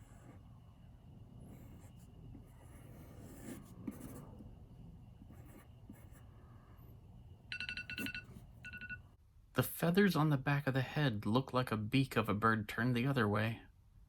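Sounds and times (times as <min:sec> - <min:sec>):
pen scratching on paper: 0:00.0 - 0:00.6, 0:01.2 - 0:04.6, 0:05.2 - 0:06.8
electronic timer alarm beeping: 0:07.5 - 0:09.1.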